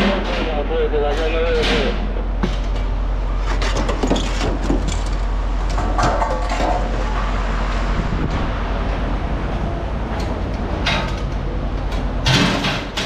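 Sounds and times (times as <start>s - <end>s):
knocks and clatter: 0.0s - 7.2s, 10.1s - 13.0s
low engine-like hum: 0.0s - 13.0s.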